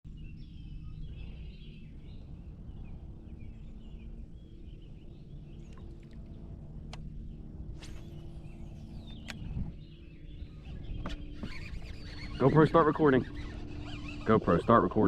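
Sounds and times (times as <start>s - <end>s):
small birds chirping: 0.1s - 15.0s
light clicks: 5.7s - 7.1s, 9.1s - 9.6s.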